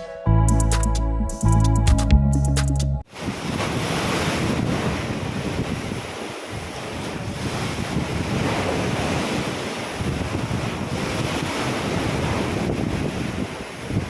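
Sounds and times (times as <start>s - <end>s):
ocean waves splashing: 3.0s - 14.0s
wind buffeting microphone: 3.2s - 14.0s.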